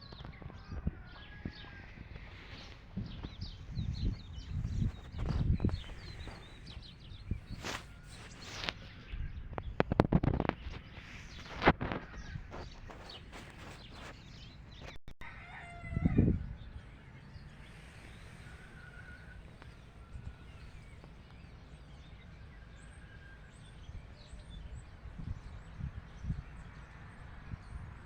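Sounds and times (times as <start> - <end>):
roosters crowing: 0.0 - 3.4, 14.8 - 23.8
small birds chirping: 0.0 - 28.0.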